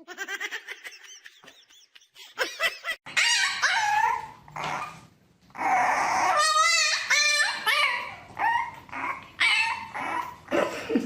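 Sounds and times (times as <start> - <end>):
dog whining: 3.1 - 10.6.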